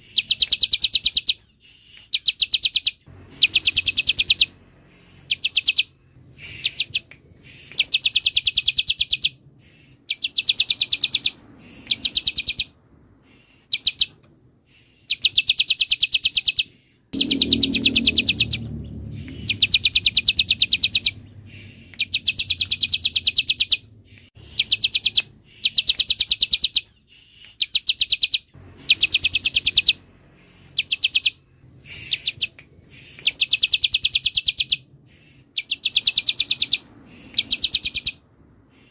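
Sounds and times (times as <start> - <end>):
bird singing rattling trills: 0.0 - 27.0, 27.6 - 38.9.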